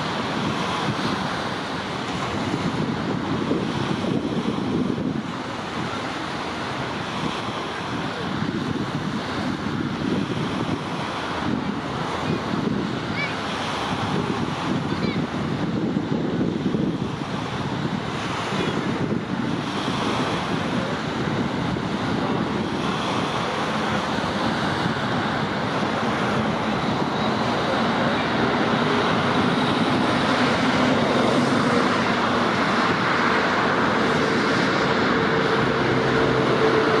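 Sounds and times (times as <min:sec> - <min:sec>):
road traffic rush: 0:00.0 - 0:37.0.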